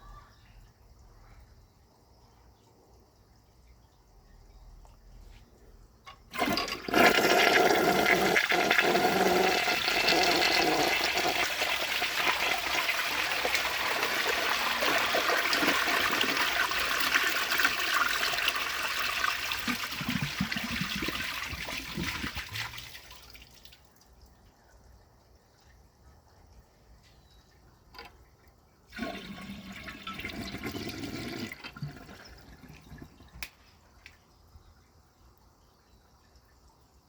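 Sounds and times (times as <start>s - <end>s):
low water gurgles: 6.3s - 22.9s, 27.5s - 37.0s
toilet flushing water rush: 6.3s - 23.3s, 28.9s - 33.4s.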